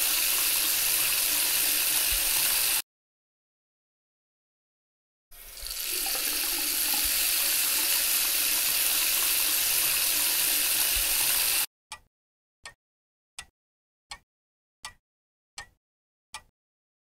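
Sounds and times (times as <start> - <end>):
tap water running into sink: 0.0 - 2.8, 5.4 - 11.7.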